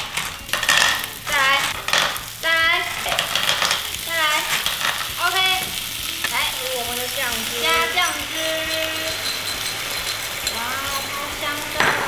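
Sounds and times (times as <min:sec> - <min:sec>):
clams sizzling in a frying pan: 0:00.0 - 0:12.0.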